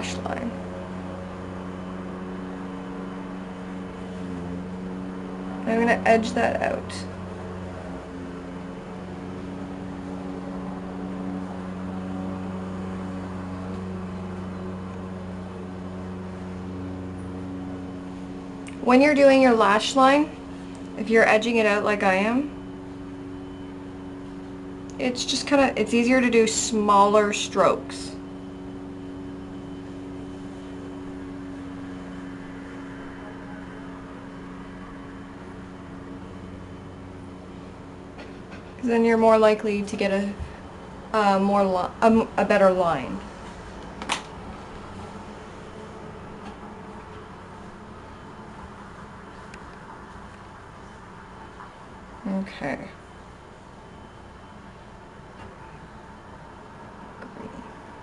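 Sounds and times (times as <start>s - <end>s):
machine hum: 0.0s - 58.0s.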